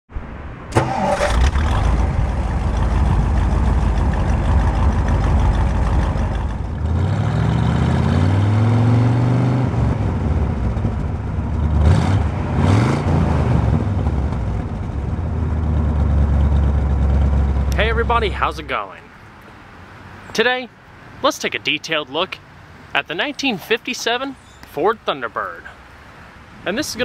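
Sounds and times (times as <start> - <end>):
car engine starting and revving: 0.7 - 18.8.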